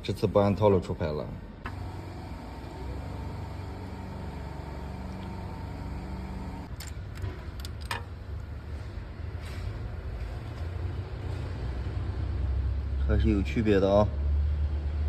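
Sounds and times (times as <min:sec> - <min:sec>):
car engine idling: 0:01.7 - 0:06.7.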